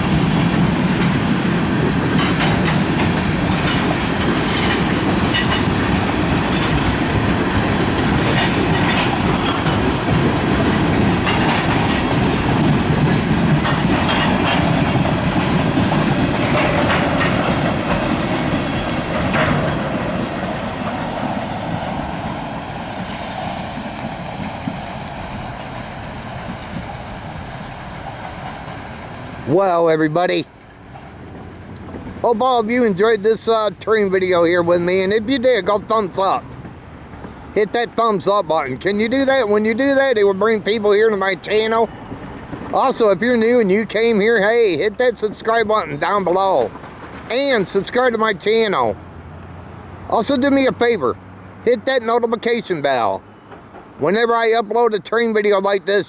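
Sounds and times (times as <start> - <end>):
train wheels clicking over rail joints: 0.0 - 56.0
faint high wheel squeal: 3.6 - 10.0, 13.6 - 32.4, 53.0 - 53.8.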